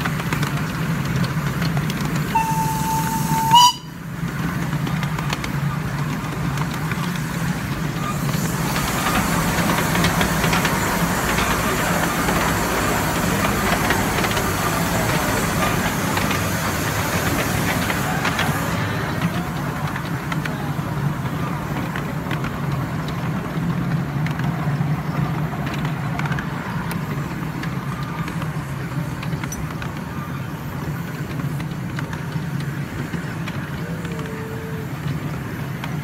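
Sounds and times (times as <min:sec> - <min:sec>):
miniature train rumbling and hissing: 0:00.0 - 0:36.0
steam locomotive whistle: 0:02.3 - 0:04.1.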